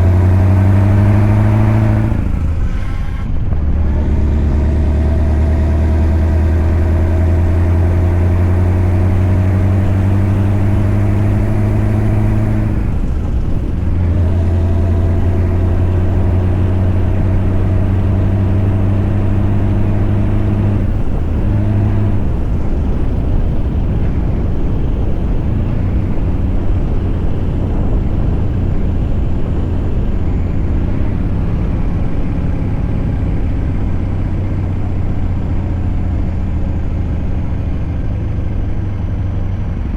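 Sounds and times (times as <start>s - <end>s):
truck engine running under load: 0.0s - 39.9s.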